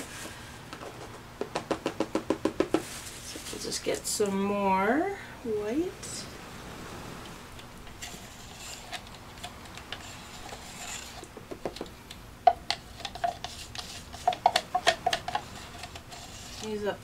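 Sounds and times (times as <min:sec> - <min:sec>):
stir stick scraping a plastic cup: 0:08.0 - 0:11.3, 0:12.7 - 0:16.9.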